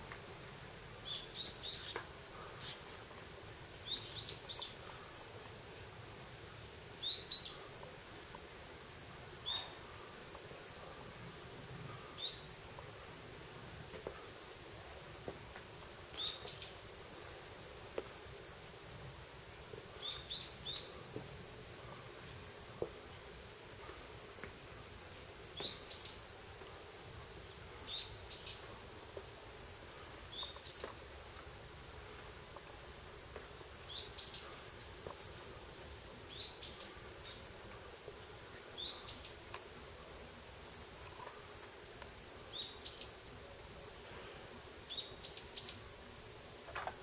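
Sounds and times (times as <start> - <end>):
faint steady background noise: 0.0 - 47.0
faint steady hiss: 0.0 - 47.0
bird calling: 9.4 - 10.0.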